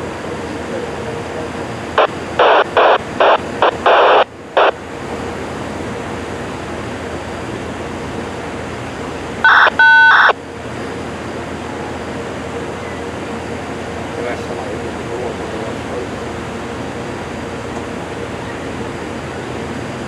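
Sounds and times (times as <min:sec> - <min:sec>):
two-tone radio beep: 0:02.0 - 0:04.8, 0:09.4 - 0:10.3
radio static bursts: 0:02.0 - 0:05.3, 0:09.4 - 0:10.3.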